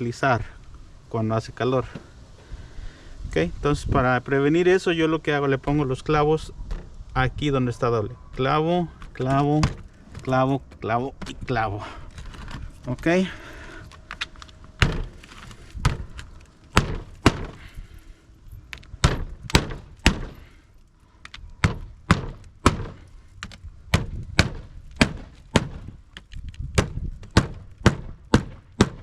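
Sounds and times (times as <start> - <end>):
hammer driving nails into shingles: 16.7 - 17.7, 19.0 - 20.5, 21.6 - 25.9, 26.8 - 29.0.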